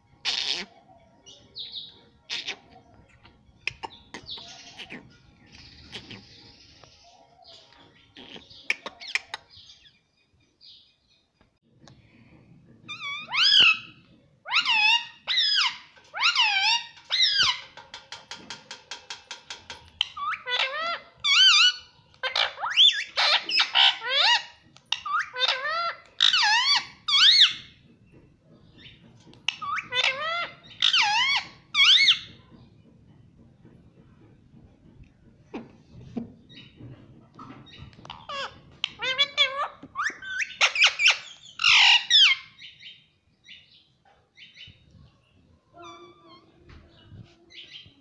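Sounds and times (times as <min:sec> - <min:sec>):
parakeet calling: 0:00.2 - 0:09.8, 0:19.9 - 0:27.7, 0:37.7 - 0:42.7
parakeet stuttering chatter: 0:02.2 - 0:06.8, 0:07.8 - 0:09.5, 0:37.8 - 0:42.4.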